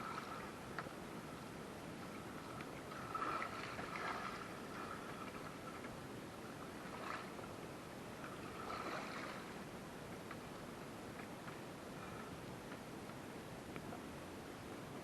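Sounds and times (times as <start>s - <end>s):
water splashes: 0.0s - 0.9s, 2.0s - 7.6s, 8.2s - 9.8s
river water washing: 0.0s - 9.8s.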